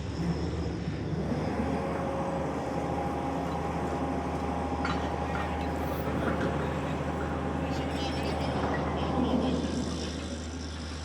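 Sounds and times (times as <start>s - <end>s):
machinery humming and whining: 0.0s - 11.0s.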